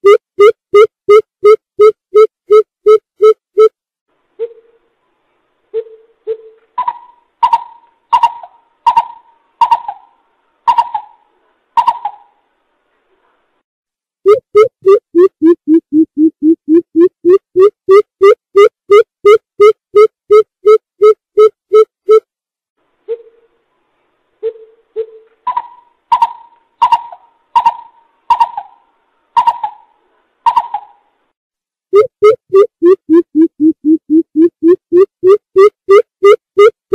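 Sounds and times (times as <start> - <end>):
bird calling with deep hollow hoots: 5.8 - 11.2, 24.4 - 31.0.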